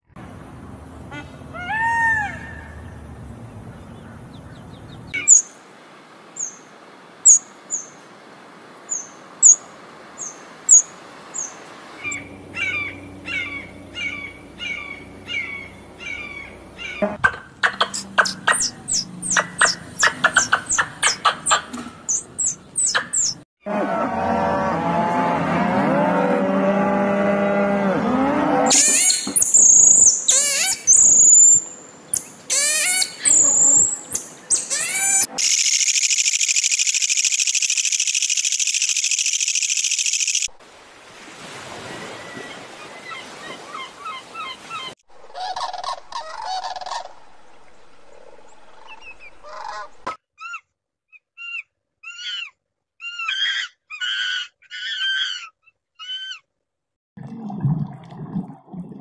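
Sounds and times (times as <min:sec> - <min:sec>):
high sweeping calls: 0:05.2 - 0:05.6, 0:06.4 - 0:08.0, 0:08.9 - 0:23.4, 0:28.7 - 0:40.5
monkey chirps: 0:16.8 - 0:23.4, 0:28.7 - 0:40.5, 0:50.4 - 0:56.4
surf washing on beach: 0:40.6 - 0:44.9.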